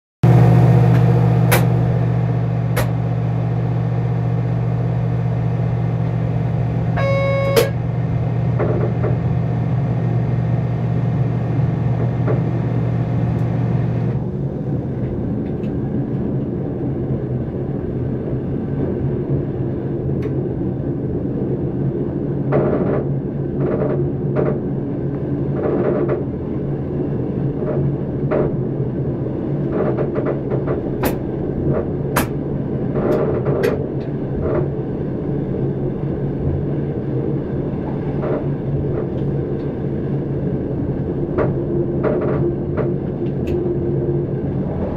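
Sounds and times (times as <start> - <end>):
electric train running rumble: 0.2 - 44.9
low hum: 0.2 - 44.9
rail noise with knocks: 0.3 - 44.9
short beep: 7.0 - 7.8.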